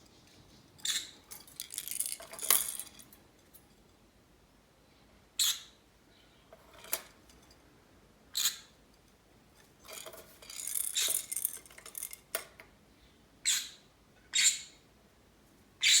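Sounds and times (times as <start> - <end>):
toy balls rattling and clicking: 1.3 - 3.2, 9.8 - 12.5.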